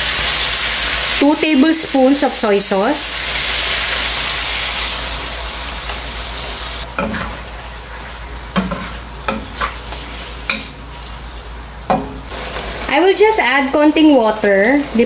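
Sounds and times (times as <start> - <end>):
food sizzling in a hot wok: 0.0 - 7.5, 12.3 - 15.0
wooden spatula scraping a pan: 8.6 - 9.8.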